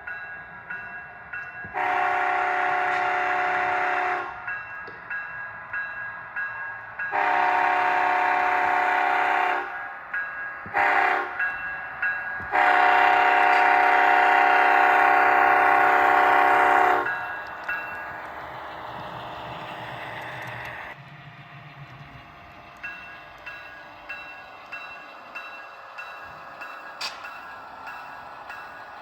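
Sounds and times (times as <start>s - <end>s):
model train running on track: 0.0s - 29.0s
model train horn blasts: 1.7s - 4.4s, 7.1s - 9.8s, 10.7s - 11.4s, 12.5s - 17.2s
small clicks: 19.8s - 20.9s.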